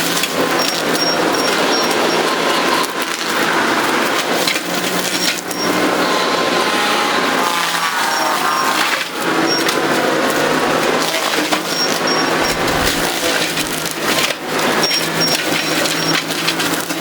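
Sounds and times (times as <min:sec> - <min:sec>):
machine droning: 0:00.0 - 0:17.0
wood crunching and splintering: 0:07.4 - 0:17.0
sharp wood cracks: 0:11.2 - 0:17.0.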